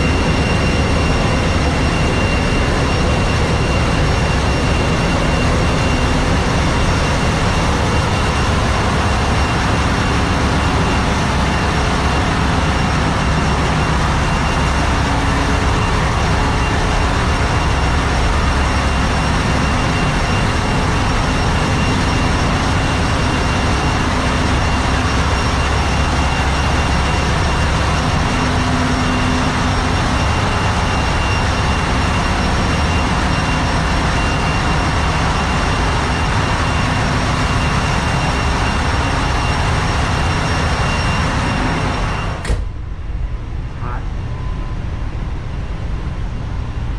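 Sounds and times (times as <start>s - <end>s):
engine room machinery running: 0.0s - 46.9s
high whine: 0.0s - 46.9s.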